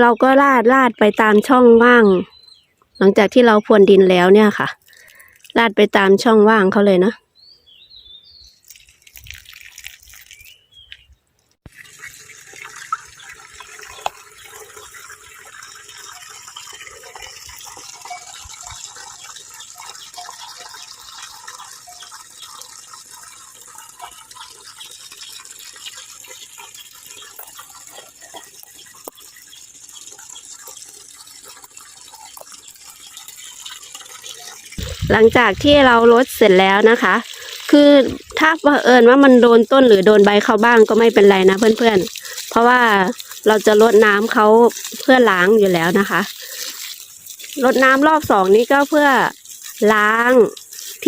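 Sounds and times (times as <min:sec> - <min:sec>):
water splashing onto soil: 0:08.5 - 0:11.1, 0:11.7 - 0:51.0.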